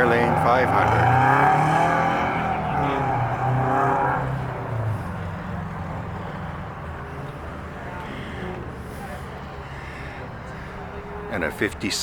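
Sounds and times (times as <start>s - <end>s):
car engine humming: 0.0s - 11.7s.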